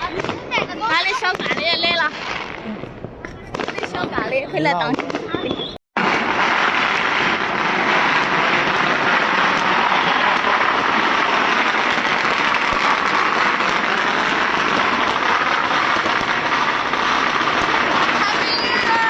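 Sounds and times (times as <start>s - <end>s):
firecrackers crackling: 0.0s - 19.0s.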